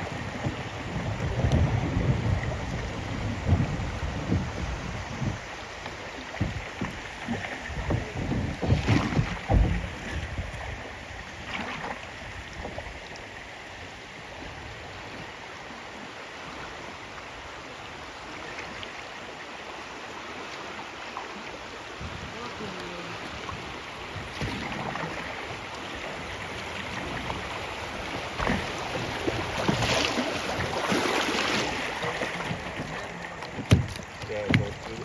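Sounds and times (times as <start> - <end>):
river water rushing: 0.0 - 35.0
low rumbling thumps: 0.4 - 5.5, 7.7 - 10.5, 31.9 - 35.0.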